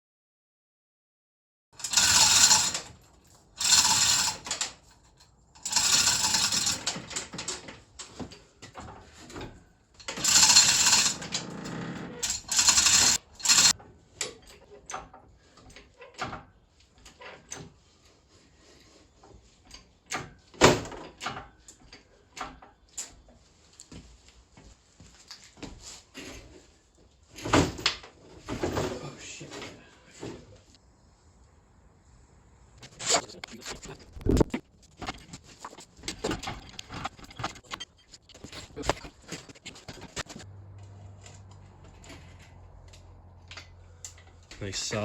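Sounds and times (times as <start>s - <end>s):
metal clicks and knocks: 32.8s - 40.5s.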